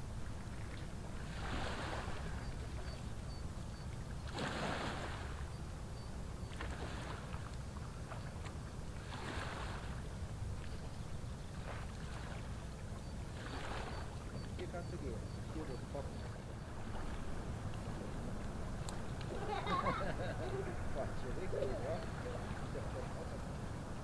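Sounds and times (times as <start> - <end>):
water surging on bank: 4.0 - 5.5, 6.4 - 24.0.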